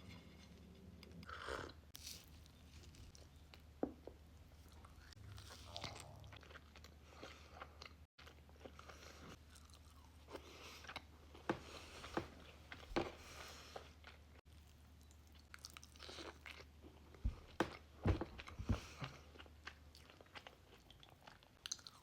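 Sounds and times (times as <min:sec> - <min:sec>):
person chewing crunchy cookies: 0:04.5 - 0:22.0.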